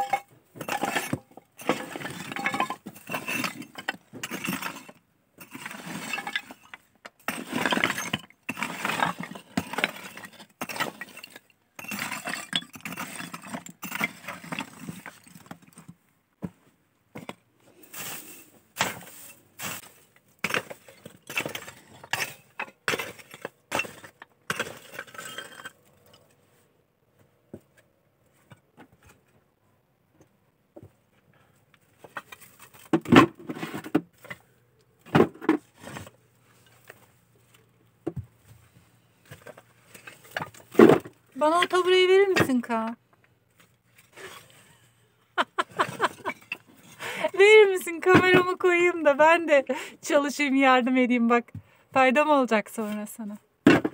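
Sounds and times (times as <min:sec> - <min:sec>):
debris clinking and scraping: 0:00.0 - 0:16.0, 0:17.1 - 0:26.4, 0:32.0 - 0:37.1, 0:39.2 - 0:42.9, 0:43.6 - 0:48.7.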